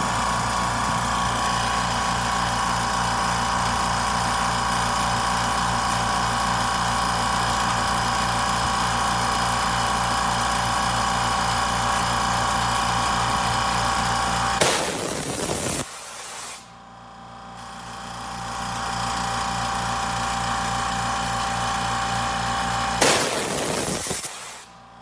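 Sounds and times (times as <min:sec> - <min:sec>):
air compressor running: 0:00.0 - 0:25.0.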